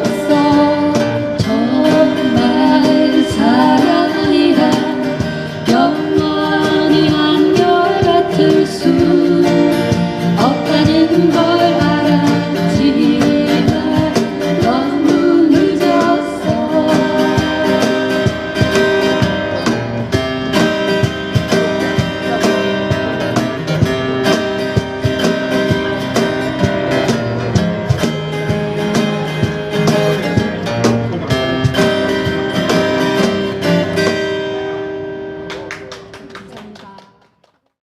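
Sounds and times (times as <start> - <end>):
person singing: 0.0 - 19.8
acoustic guitar strumming: 0.0 - 36.9.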